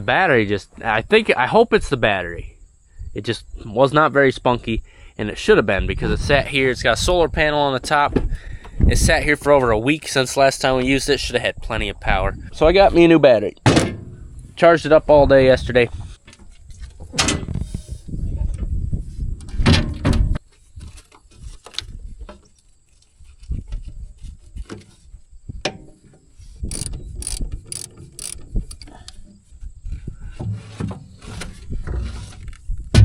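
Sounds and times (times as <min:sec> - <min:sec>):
metal tools clanking: 0:26.7 - 0:28.9
sharp clicks: 0:26.7 - 0:28.9.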